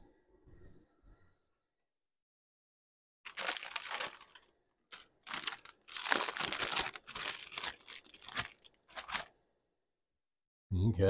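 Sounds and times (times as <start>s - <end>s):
crinkling crunching handling noise: 3.3s - 9.4s.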